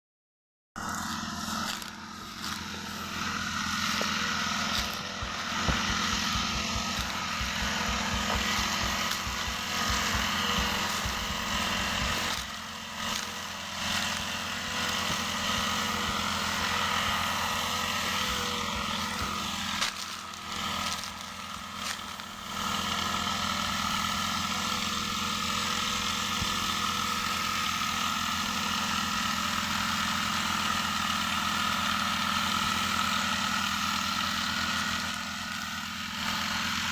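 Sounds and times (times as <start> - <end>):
power sprayer engine running: 0.8 - 36.9.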